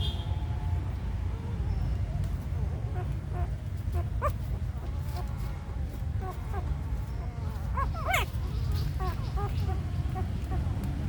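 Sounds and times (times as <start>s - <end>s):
steady low rumble: 0.0s - 11.0s
puppies squeaking and whimpering: 2.8s - 10.8s.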